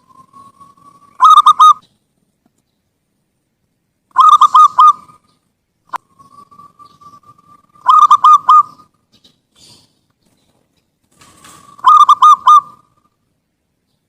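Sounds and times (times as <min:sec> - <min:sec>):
dove cooing: 0:00.0 - 0:01.9, 0:04.1 - 0:05.3, 0:05.9 - 0:09.0, 0:11.2 - 0:13.1.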